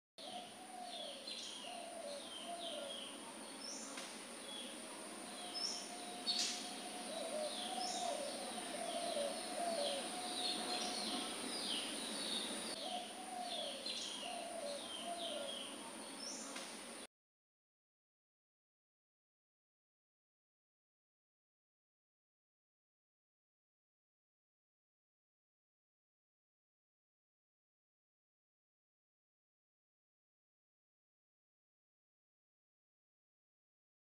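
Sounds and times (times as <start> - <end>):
birds chirping: 0.2 - 17.1
steady high hiss: 0.4 - 17.1
low warbling bird call: 5.4 - 15.7.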